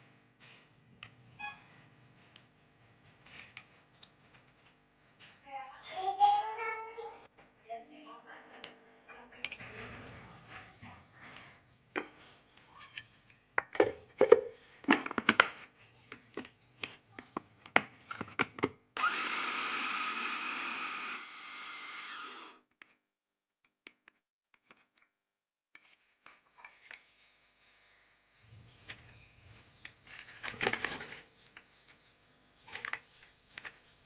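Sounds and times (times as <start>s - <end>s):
kitchen appliance motor running: 19.0s - 22.6s.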